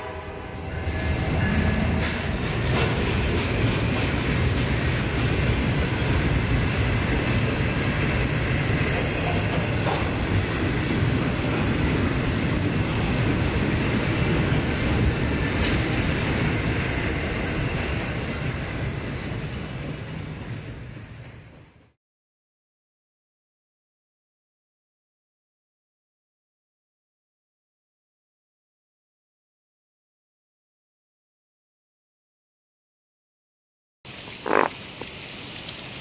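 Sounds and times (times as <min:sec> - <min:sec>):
model train rumbling on track: 0:00.0 - 0:22.0.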